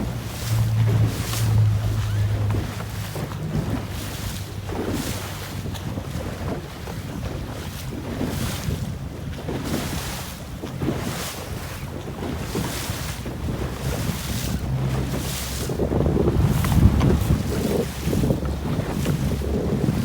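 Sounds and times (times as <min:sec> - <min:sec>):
water splashing against hull: 0:00.0 - 0:20.0
wind buffeting microphone: 0:00.0 - 0:20.0.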